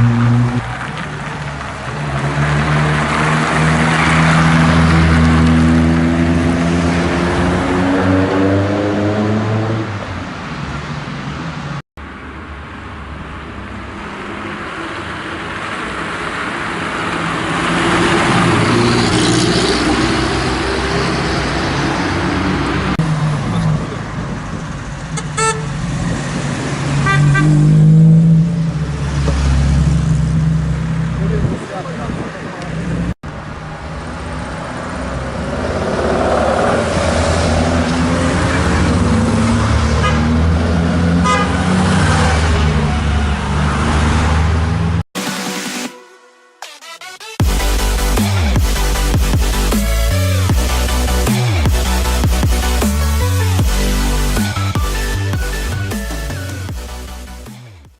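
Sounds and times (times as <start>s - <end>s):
rally cars accelerating past: 0.0s - 10.2s, 34.0s - 45.0s.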